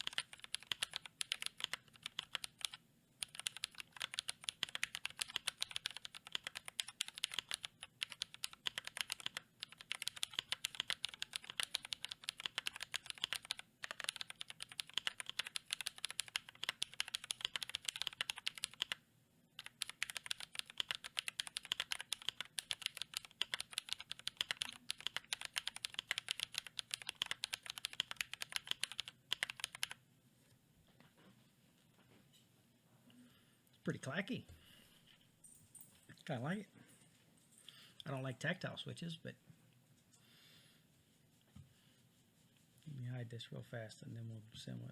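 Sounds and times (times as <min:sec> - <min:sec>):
fast typing on mechanical keyboard: 0:00.0 - 0:19.0, 0:19.6 - 0:30.0.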